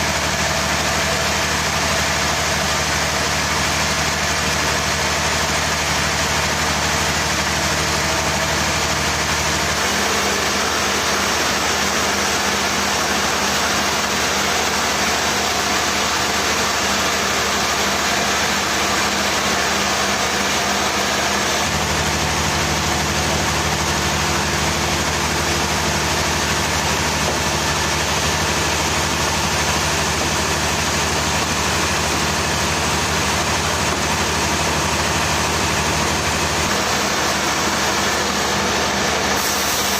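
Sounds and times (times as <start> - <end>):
heavy engine running: 0.0 - 39.9.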